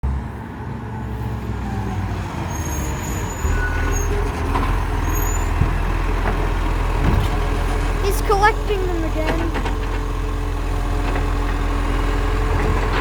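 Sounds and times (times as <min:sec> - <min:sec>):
truck engine humming: 0:05.9 - 0:11.4.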